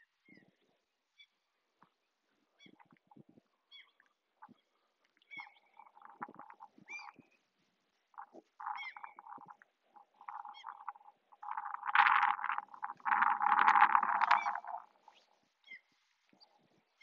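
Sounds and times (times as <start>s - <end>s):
birds calling: 5.3s - 7.3s, 8.2s - 15.9s
rustling noise: 5.9s - 17.0s.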